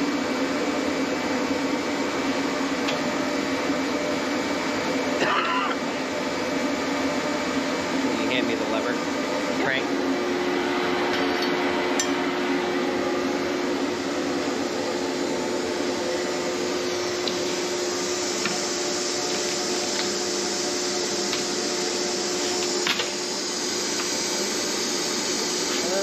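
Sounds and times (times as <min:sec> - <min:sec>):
machinery humming: 0:00.0 - 0:26.0.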